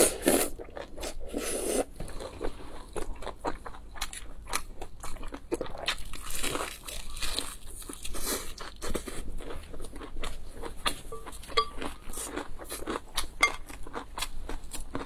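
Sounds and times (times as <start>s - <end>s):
person chewing and crunching food: 0.0s - 15.0s.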